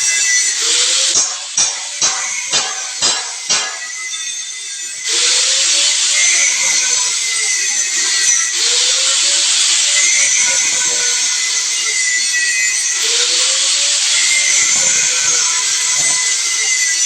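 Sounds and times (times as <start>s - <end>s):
loud hiss: 0.0s - 17.0s
small electric motor running: 0.0s - 17.0s.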